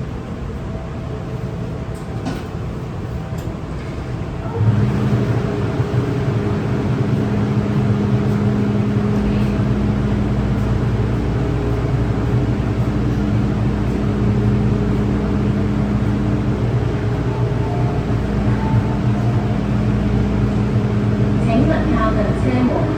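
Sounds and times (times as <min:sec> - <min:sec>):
train running rumble: 0:00.0 - 0:22.9
steady humming tones: 0:02.8 - 0:22.9
deep low rumble: 0:05.1 - 0:22.9.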